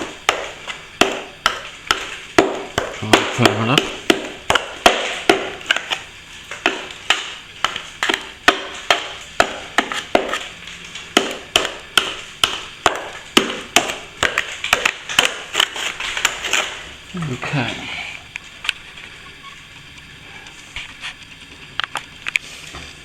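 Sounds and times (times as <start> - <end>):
plastering tool tapping and scraping: 0.0 - 16.9.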